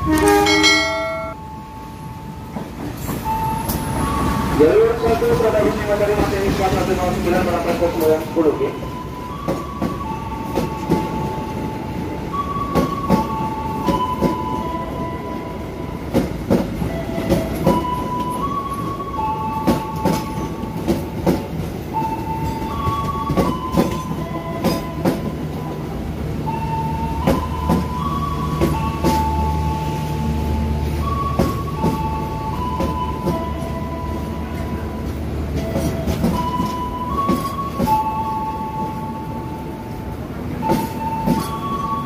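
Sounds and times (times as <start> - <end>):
deep train rumble: 0.0 - 42.0.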